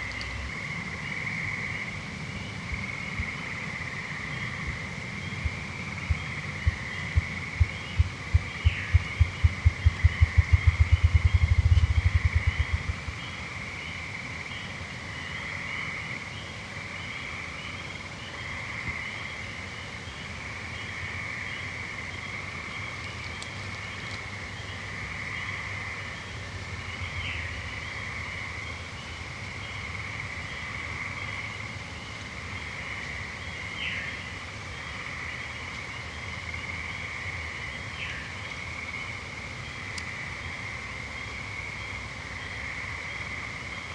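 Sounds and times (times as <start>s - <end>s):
treefrogs trilling: 0.0s - 43.9s
low thumps speeding into a whir: 5.4s - 13.1s.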